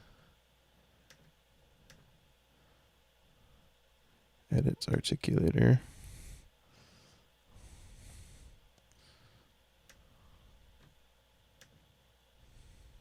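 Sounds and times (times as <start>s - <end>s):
faint breathing: 5.8s - 10.7s, 12.4s - 13.0s.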